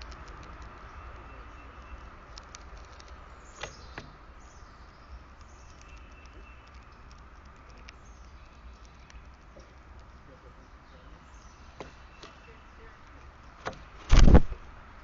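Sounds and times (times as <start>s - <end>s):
faint bird chirp: 0.7s - 13.6s
light clicks and taps: 5.4s - 10.2s.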